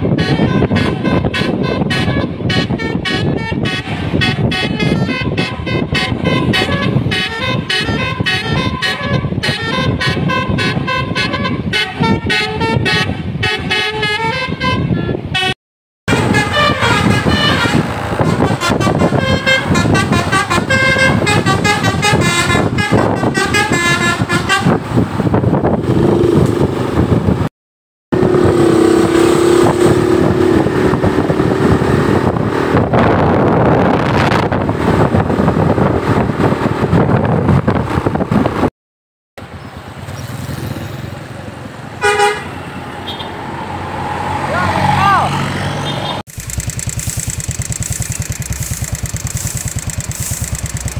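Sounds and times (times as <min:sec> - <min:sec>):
multi-tone bus horn melody: 0:00.0 - 0:25.5, 0:28.2 - 0:35.2, 0:42.0 - 0:43.4
steady horn tone: 0:00.0 - 0:26.5, 0:42.0 - 0:43.3, 0:45.8 - 0:50.9
engine and road noise: 0:00.0 - 0:27.5, 0:28.1 - 0:38.7, 0:39.4 - 0:50.9.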